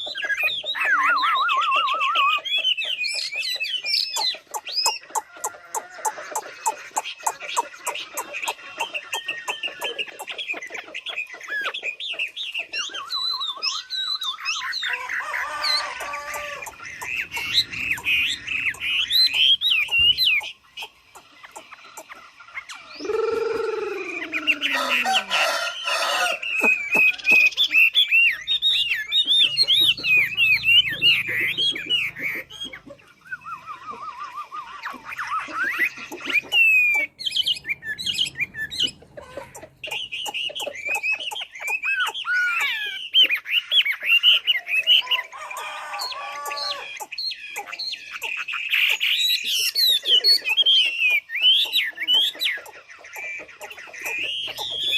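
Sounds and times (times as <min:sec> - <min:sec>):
songbird warbling: 0:00.0 - 0:54.9
rooster crowing: 0:14.9 - 0:16.8, 0:23.0 - 0:27.4, 0:45.1 - 0:47.0.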